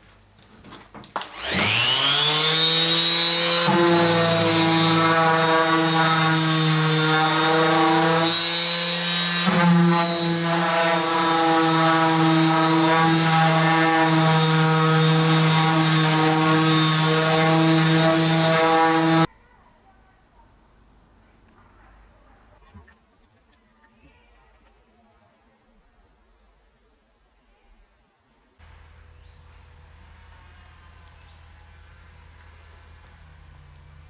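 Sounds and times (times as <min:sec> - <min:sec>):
electric power tool motor: 0:01.2 - 0:19.3.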